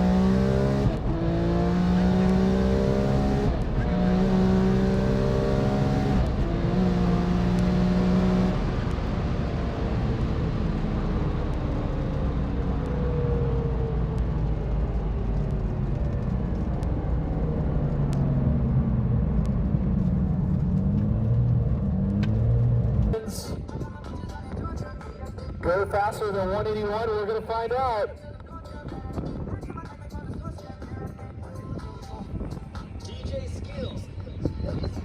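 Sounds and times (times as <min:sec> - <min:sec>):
race car engine at full throttle: 0:00.0 - 0:23.3.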